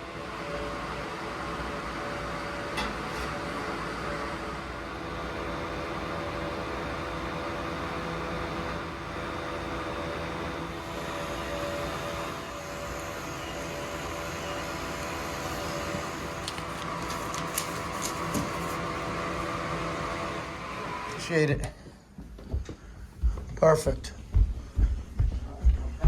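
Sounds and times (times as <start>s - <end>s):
gas boiler humming: 0.0s - 26.0s.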